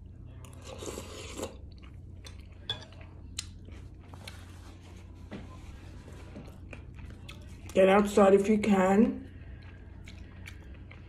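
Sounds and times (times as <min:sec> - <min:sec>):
chewing with wet mouth clicks: 0:00.4 - 0:04.4, 0:06.6 - 0:07.8, 0:09.3 - 0:11.0.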